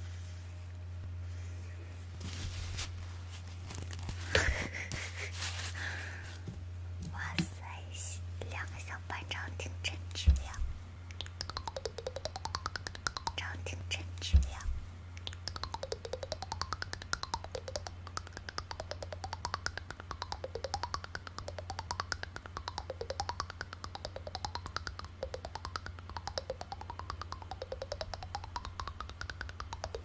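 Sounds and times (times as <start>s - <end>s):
steady low hum: 0.0s - 30.0s
rapid clicking with sliding tone: 10.0s - 14.6s, 15.2s - 30.0s.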